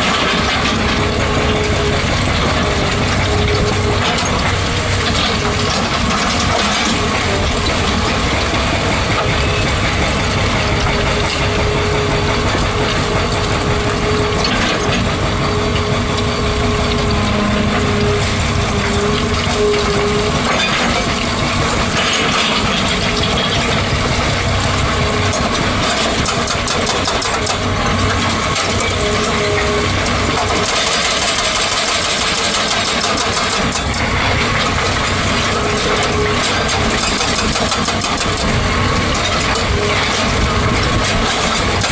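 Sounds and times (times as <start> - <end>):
excavator engine and hydraulics: 0.0 - 41.9
hydraulic whine: 0.0 - 41.9.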